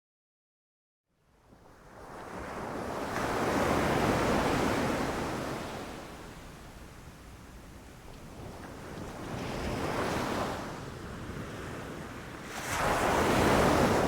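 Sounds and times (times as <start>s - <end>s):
sea waves washing onto beach: 7.8s - 14.0s.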